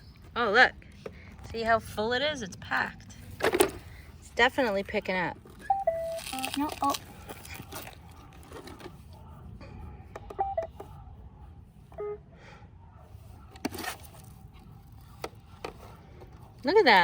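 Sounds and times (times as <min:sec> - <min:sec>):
robot vacuum beep tones: 0:05.6 - 0:06.6, 0:10.4 - 0:10.7.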